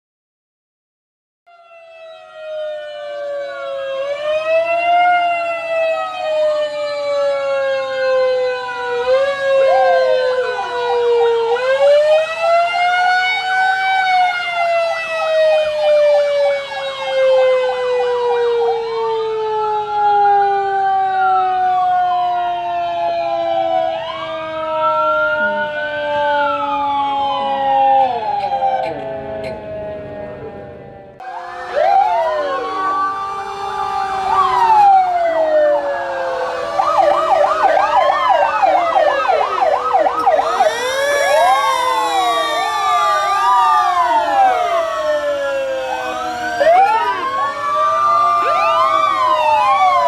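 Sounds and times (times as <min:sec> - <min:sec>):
emergency vehicle sirens wailing: 0:01.5 - 0:50.0
siren yelp: 0:01.5 - 0:50.0.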